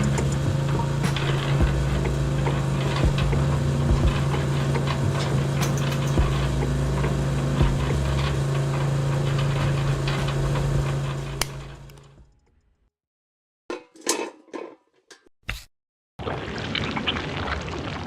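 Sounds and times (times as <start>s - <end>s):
small motor humming: 0.0s - 11.9s.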